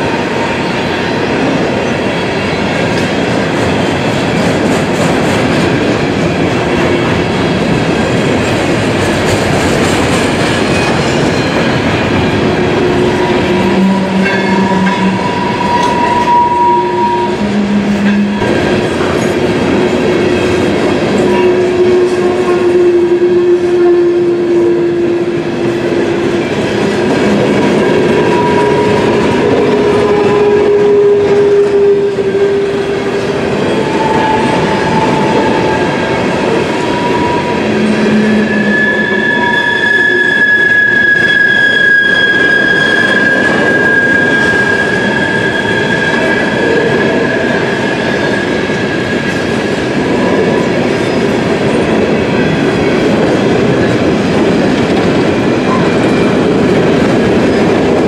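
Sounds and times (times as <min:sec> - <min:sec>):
train wheels rolling on rail: 0:00.0 - 0:58.0
wheel squeals: 0:36.8 - 0:47.0.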